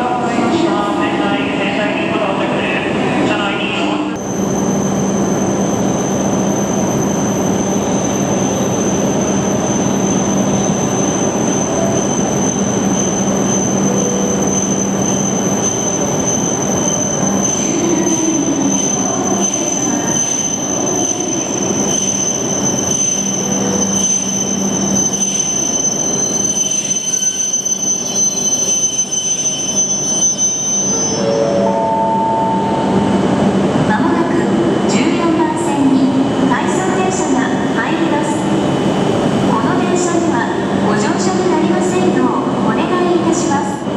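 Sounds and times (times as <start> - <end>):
high-pitched wheel squeal: 4.2 - 33.0.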